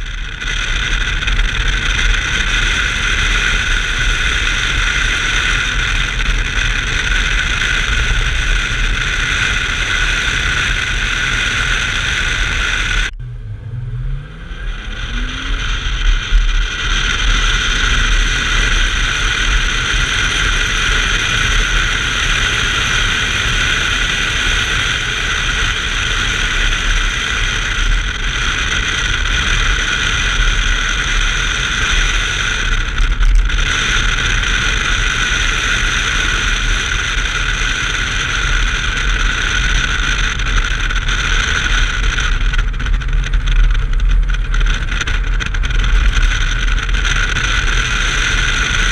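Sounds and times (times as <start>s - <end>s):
car engine at speed: 0.0s - 48.9s
road noise: 0.0s - 48.9s
wind noise: 0.0s - 48.9s.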